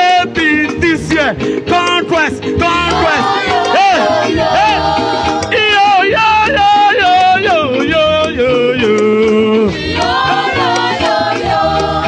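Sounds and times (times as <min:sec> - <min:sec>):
choir singing with band: 0:02.5 - 0:12.0.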